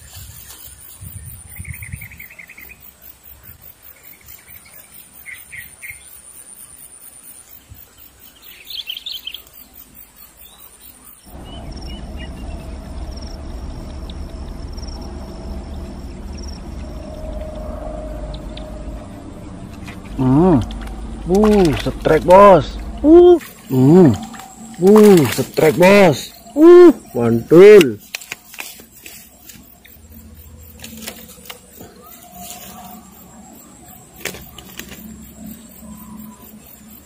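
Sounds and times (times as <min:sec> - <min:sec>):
birds chirping: 0:00.0 - 0:37.0
steady high-pitched insect tone: 0:00.0 - 0:37.0
low drone: 0:11.3 - 0:37.0.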